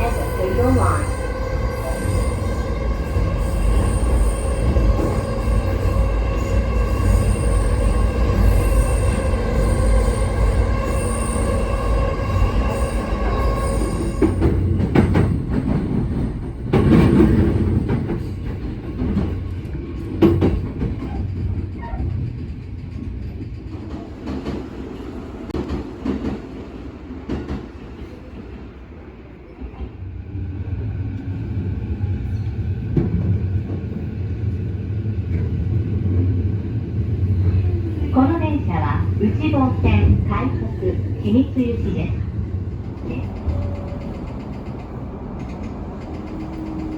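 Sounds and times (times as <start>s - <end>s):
electric train whine: 0.0s - 16.6s
train wheels rumbling on track: 0.0s - 46.9s.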